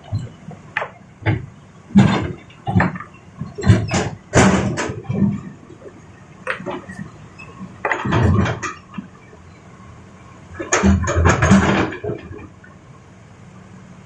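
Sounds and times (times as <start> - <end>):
rocks knocking on excavator bucket: 0.1 - 5.4.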